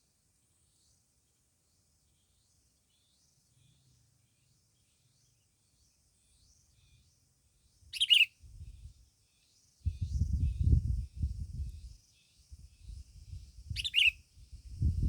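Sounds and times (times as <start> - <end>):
small bird chirping: 7.9 - 8.9, 13.6 - 14.2.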